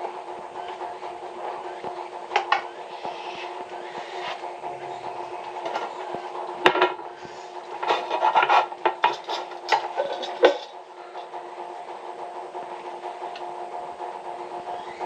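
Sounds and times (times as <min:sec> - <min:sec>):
steady hum: 0:00.0 - 0:15.0
tool scraping pipe: 0:02.4 - 0:04.5, 0:06.6 - 0:11.3.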